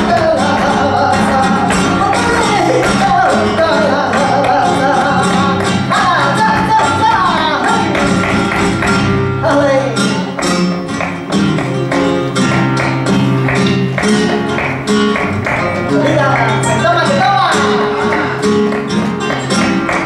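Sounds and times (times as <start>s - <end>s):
person singing: 0.0s - 8.4s
guitar chords: 0.0s - 20.0s
rhythmic percussive strikes: 0.0s - 20.0s.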